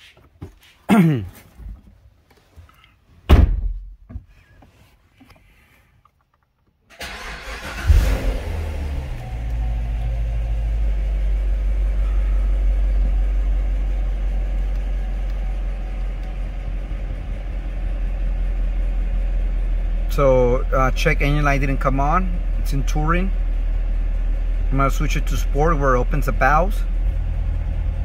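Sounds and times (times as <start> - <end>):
car engine starting and idling: 6.9 - 28.0.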